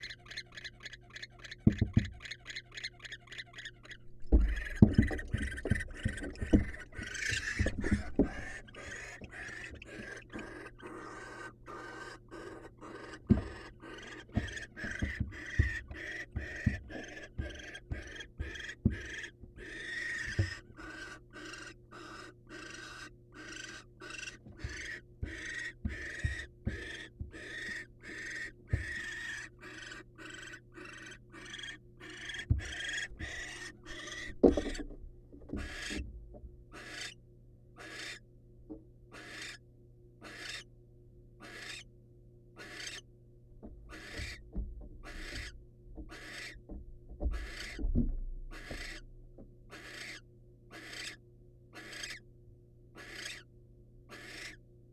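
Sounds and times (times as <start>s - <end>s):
owl hissing begging calls: 0.0s - 1.6s, 2.2s - 4.8s, 5.4s - 34.3s, 35.6s - 36.0s, 36.7s - 37.2s, 37.8s - 38.2s, 39.1s - 39.6s, 40.2s - 40.6s, 41.4s - 41.8s, 42.6s - 43.0s, 43.9s - 44.4s, 45.0s - 46.6s, 47.4s - 47.8s, 48.5s - 49.0s, 49.7s - 51.2s, 51.8s - 52.2s, 53.0s - 53.5s, 54.1s - 54.6s
owls thumping on wooden floor: 1.6s - 2.3s, 4.0s - 9.4s, 14.3s - 19.6s, 32.4s - 36.5s, 43.6s - 49.6s.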